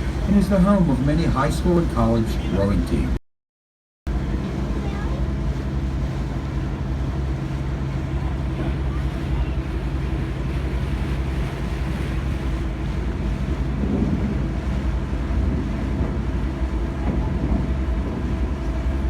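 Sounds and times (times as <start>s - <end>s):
boat engine droning: 0.0s - 3.2s, 4.1s - 19.0s
wind buffeting microphone: 4.1s - 19.0s.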